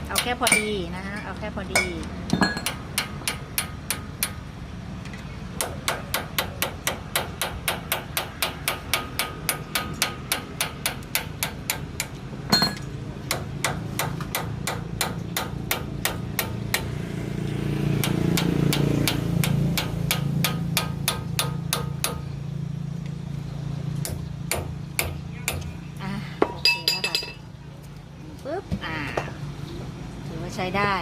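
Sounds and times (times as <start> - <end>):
hammer striking metal: 0.0 - 4.4, 5.6 - 16.9, 18.0 - 22.3.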